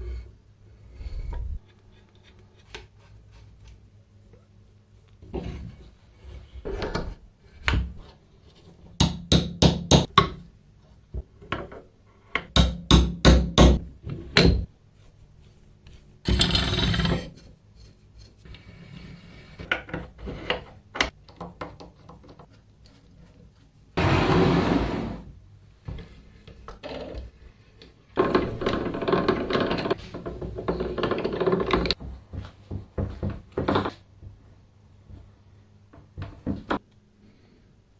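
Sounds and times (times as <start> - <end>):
tapping and knocking on metal: 9.0 - 10.4, 12.4 - 14.7.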